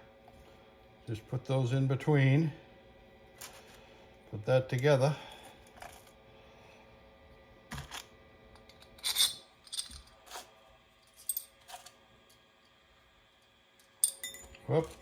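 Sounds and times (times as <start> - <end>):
metal parts clicking and clinking: 8.7 - 10.1, 11.1 - 11.9, 14.0 - 15.0.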